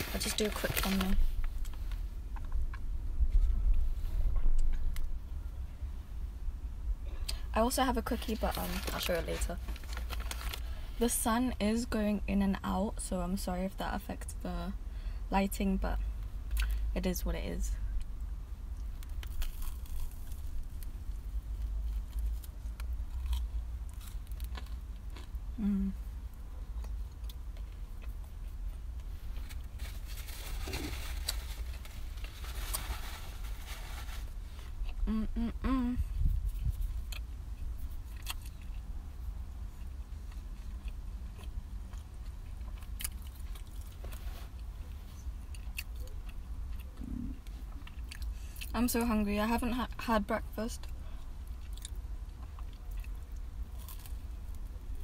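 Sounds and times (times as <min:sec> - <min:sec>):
low steady rumble: 0:00.0 - 0:55.0
crunching and chewing toast: 0:18.7 - 0:25.5, 0:36.7 - 0:38.9, 0:39.6 - 0:44.7, 0:45.4 - 0:48.7, 0:50.8 - 0:55.0
toasted bread crunches: 0:19.0 - 0:25.4, 0:29.3 - 0:34.4, 0:52.6 - 0:54.7.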